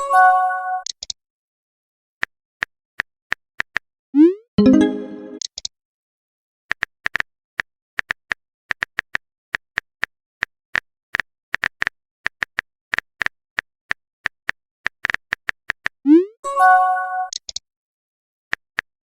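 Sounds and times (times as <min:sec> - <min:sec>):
keyboard typing clicks: 0:17.3 - 0:17.6.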